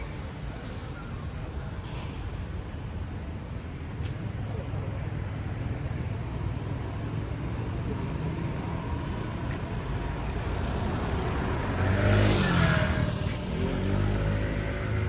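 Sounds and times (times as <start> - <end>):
traffic rumble: 0.0 - 15.0
car passing by: 10.2 - 15.0.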